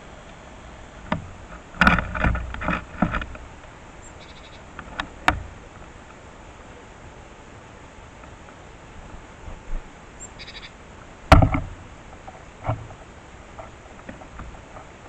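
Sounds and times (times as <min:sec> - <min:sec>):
birds scrabbling on feeder: 0:11.3 - 0:15.0.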